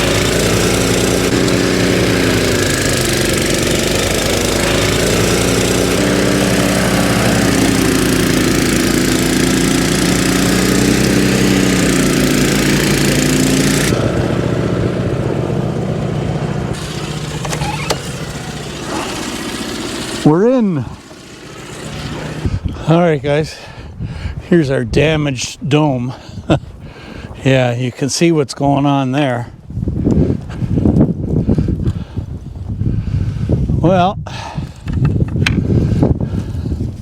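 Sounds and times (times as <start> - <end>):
snowblower engine running: 0.0 - 22.7.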